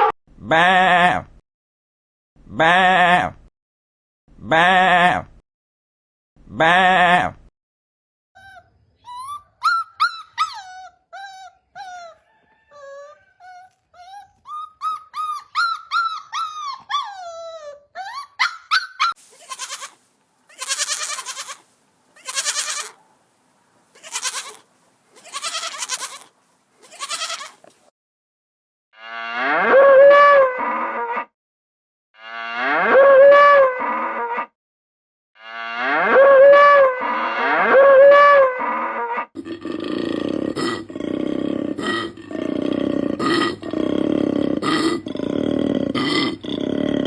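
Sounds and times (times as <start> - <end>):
animal squeaky cries: 8.4 - 21.6, 22.2 - 23.0, 24.0 - 24.6, 25.2 - 27.6
animal harsh calls: 8.4 - 23.2, 24.0 - 27.6, 36.2 - 47.0.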